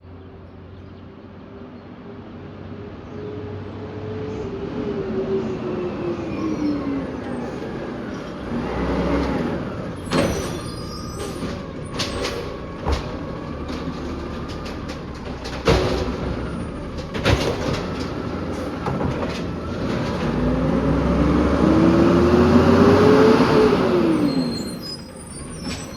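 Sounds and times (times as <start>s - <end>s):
garbage truck engine: 2.4s - 25.9s
sharp knocks and clatters: 11.2s - 20.4s.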